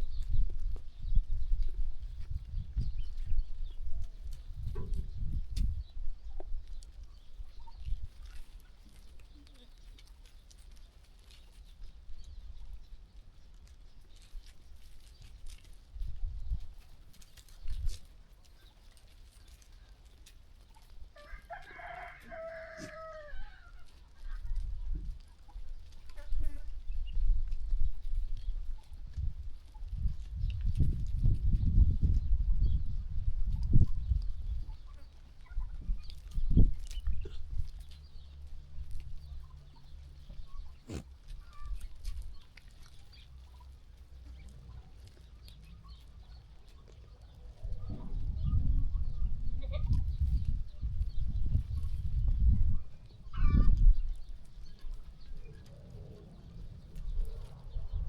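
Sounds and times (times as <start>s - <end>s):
rooster crowing: 21.2s - 23.7s
steady low rumble: 47.4s - 58.0s.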